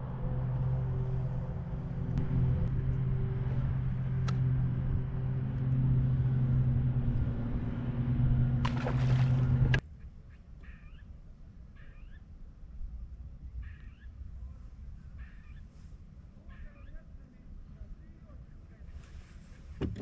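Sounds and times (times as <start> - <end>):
outboard motor humming: 0.0 - 9.8.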